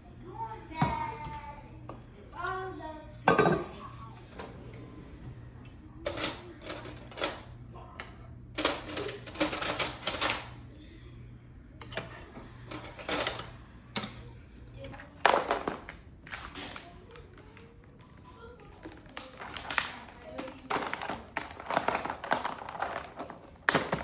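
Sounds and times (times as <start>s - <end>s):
dishes and cutlery clinking: 3.2s - 4.5s, 6.1s - 7.5s, 8.6s - 11.0s, 11.8s - 15.8s.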